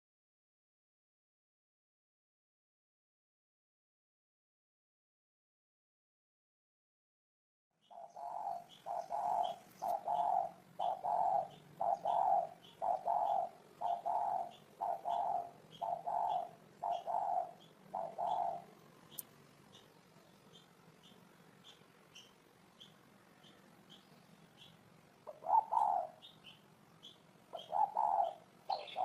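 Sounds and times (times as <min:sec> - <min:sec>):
faint high chirps: 0:07.8 - 0:29.0
dove cooing: 0:07.9 - 0:19.9, 0:25.2 - 0:29.0.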